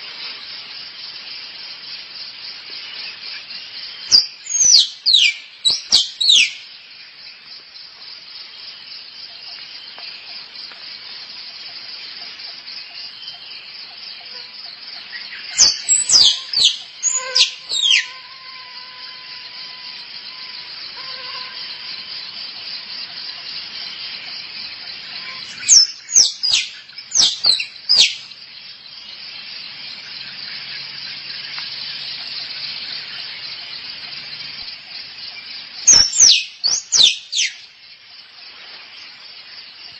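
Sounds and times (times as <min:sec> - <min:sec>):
squirrel squeaks: 0:15.9 - 0:18.1.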